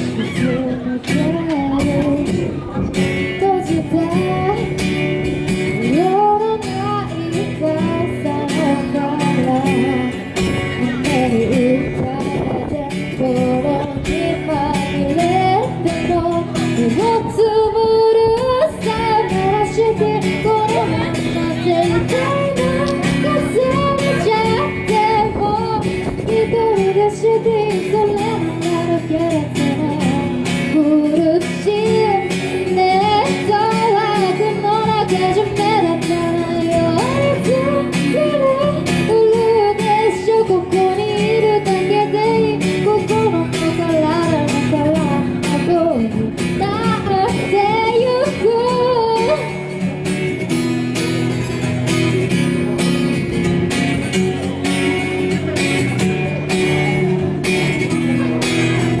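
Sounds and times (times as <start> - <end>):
woman singing pop song: 0.0 - 52.4
acoustic guitar: 0.0 - 59.0.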